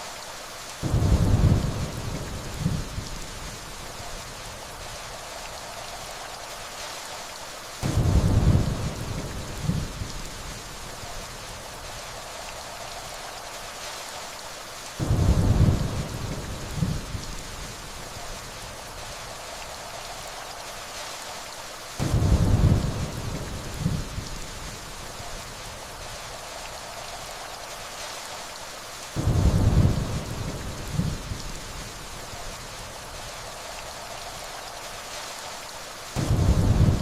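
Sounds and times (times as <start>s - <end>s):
steady rainfall: 0.0s - 37.0s
low thunder rolling: 0.8s - 3.6s, 7.8s - 10.1s, 15.0s - 17.3s, 22.0s - 24.8s, 29.2s - 31.5s, 36.2s - 37.0s.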